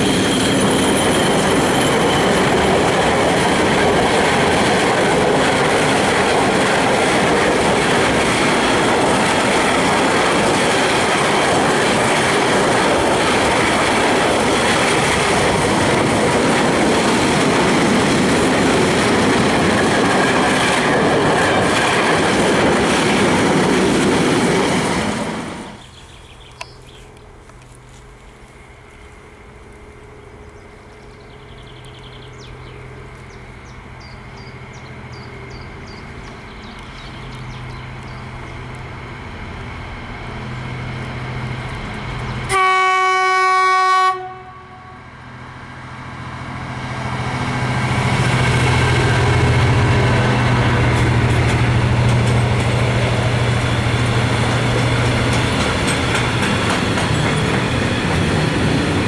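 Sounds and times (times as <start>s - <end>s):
locomotive engine drone: 0.0s - 43.1s, 44.2s - 59.0s
loud train horn blast: 42.5s - 45.2s
freight wagons rumbling and clattering: 50.4s - 59.0s.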